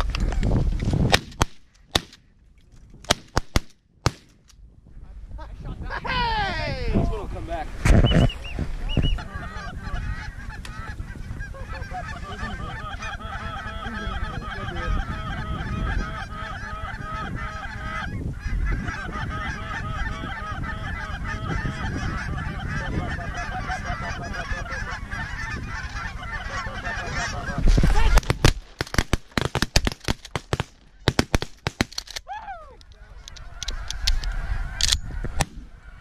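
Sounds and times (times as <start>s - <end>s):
flock of geese honking: 8.1s - 28.4s, 32.9s - 36.0s.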